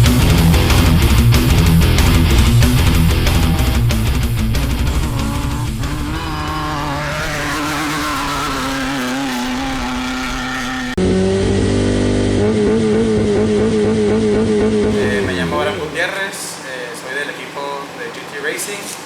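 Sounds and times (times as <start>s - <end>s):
engine idling: 0.0s - 11.0s, 14.9s - 19.0s
engine running at steady revs: 0.0s - 19.0s.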